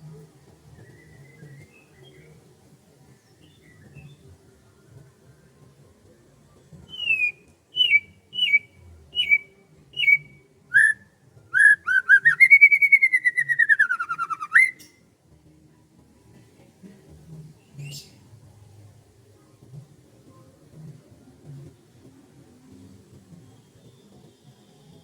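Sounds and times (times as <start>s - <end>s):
bird whistling song: 0.7s - 2.4s, 6.9s - 15.0s.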